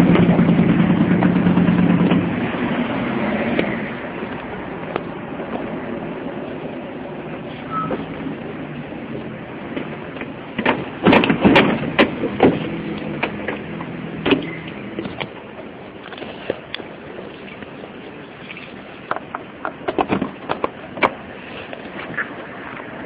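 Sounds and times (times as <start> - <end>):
traffic noise: 0.0 - 23.0
sharp knocks and clatters: 9.7 - 15.4, 19.1 - 21.2.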